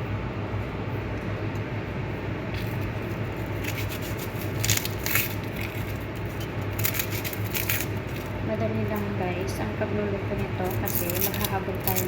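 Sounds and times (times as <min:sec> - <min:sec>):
steady low hum: 0:00.0 - 0:12.0
crackly rustling and scraping: 0:02.5 - 0:09.1.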